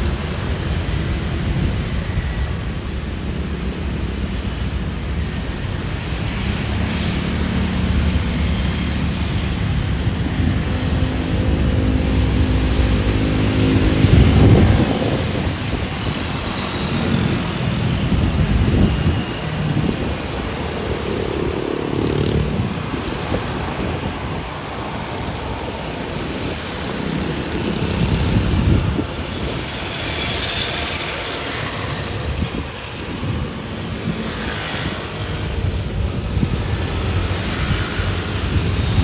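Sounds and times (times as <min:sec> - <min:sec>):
airliner engine rush: 0:00.0 - 0:39.0
wind buffeting microphone: 0:00.0 - 0:39.0.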